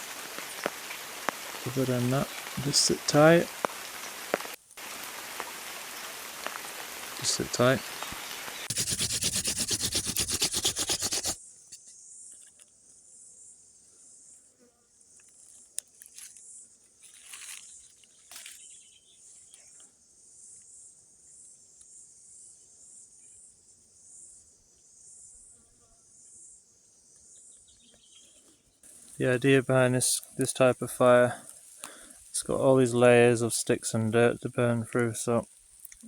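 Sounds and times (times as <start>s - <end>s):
loud rain pattering: 0.0s - 8.7s
insects chirring: 0.0s - 36.0s
soft rustles: 17.0s - 18.6s.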